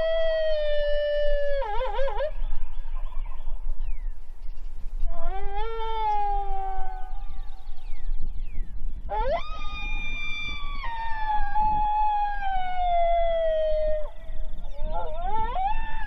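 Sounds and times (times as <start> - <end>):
coyote howl from electronic call: 5.2 - 7.4, 9.1 - 16.0.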